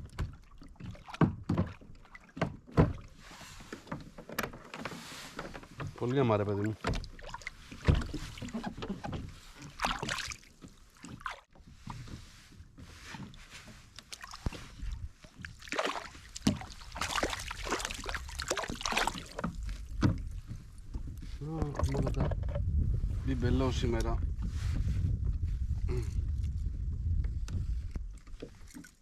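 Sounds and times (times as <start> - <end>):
water lapping against kayak hull: 0.0 - 29.0
light knocks on hull: 1.1 - 3.1, 6.8 - 10.3.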